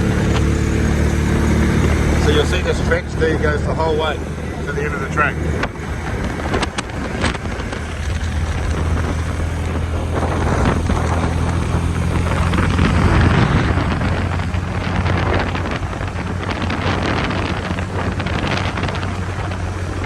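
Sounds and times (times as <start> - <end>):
tyre and road noise: 0.0 - 20.0
vehicle engine hum: 0.0 - 20.0
wind buffeting microphone: 0.0 - 20.0.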